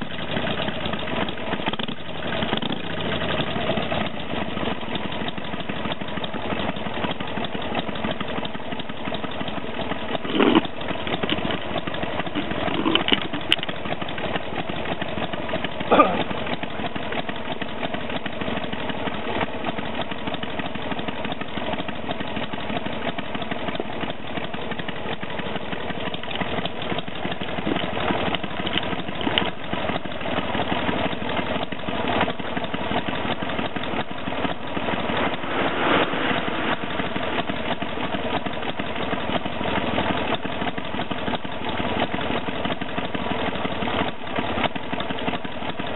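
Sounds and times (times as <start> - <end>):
motorcycle engine idling: 0.0 - 45.9.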